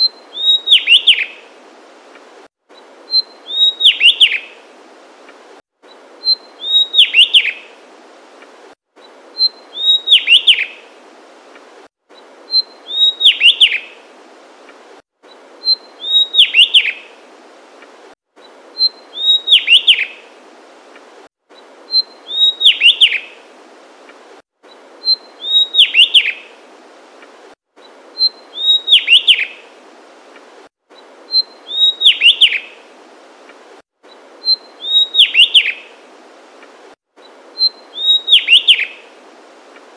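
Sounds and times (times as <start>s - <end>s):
bird whistled song: 0.0s - 1.4s, 3.1s - 4.6s, 5.9s - 7.7s, 9.4s - 10.8s, 12.5s - 14.0s, 15.3s - 17.1s, 18.8s - 20.2s, 21.9s - 23.4s, 24.7s - 26.5s, 28.2s - 29.6s, 31.0s - 32.8s, 34.1s - 36.0s, 37.2s - 39.1s.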